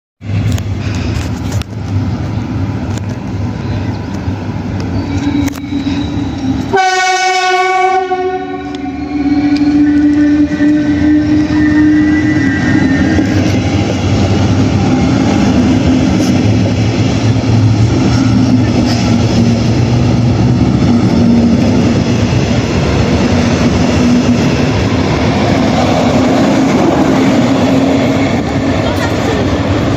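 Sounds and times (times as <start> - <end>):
train rumbling past: 0.2 - 29.9
train horn: 5.1 - 13.6.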